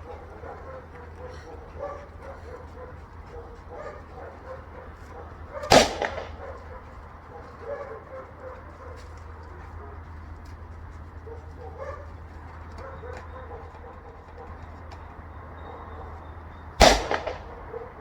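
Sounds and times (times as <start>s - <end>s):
dog barking: 0.0s - 10.3s, 11.2s - 14.7s, 15.6s - 16.2s, 17.4s - 18.0s.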